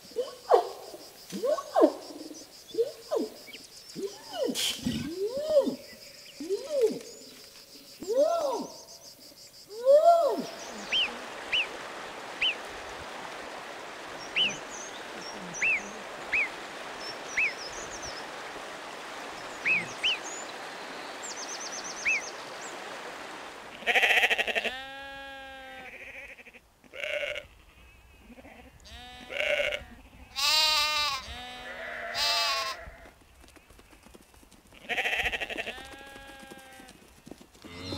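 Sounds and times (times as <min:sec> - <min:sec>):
steady hiss: 0:00.0 - 0:26.4
orangutan calling: 0:01.4 - 0:07.2
sheep bleating: 0:23.8 - 0:33.0, 0:34.8 - 0:36.9, 0:37.6 - 0:37.9.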